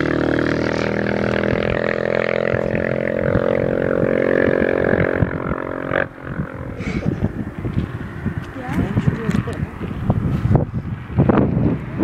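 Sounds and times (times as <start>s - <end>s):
motorcycle engine droning: 0.0s - 12.0s.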